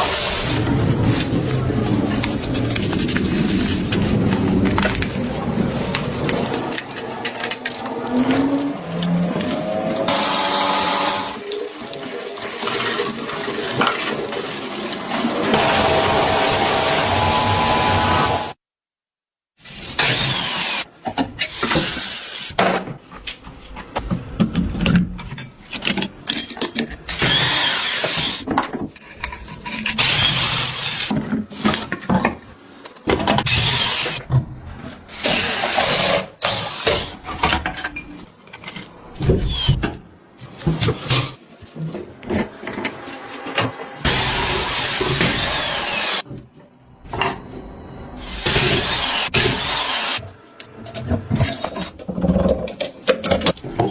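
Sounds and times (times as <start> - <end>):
power drill drilling: 9.9 - 11.4, 15.4 - 18.6, 19.9 - 20.8, 27.1 - 28.4, 33.4 - 34.2, 44.0 - 46.2, 48.2 - 50.2.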